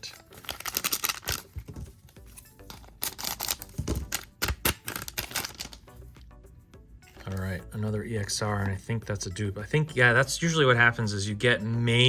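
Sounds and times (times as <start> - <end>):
cards flipping and clicking: 0.0 - 6.0
quiet background music: 0.0 - 12.0.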